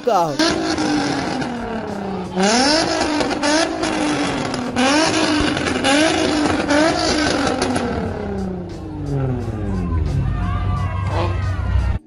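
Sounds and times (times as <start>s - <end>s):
sports car engine revving: 0.3s - 12.0s.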